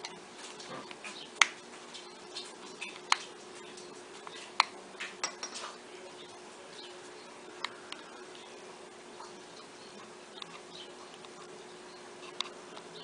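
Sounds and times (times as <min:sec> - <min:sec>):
light scraping and ticking: 0:00.0 - 0:06.4, 0:12.2 - 0:13.0.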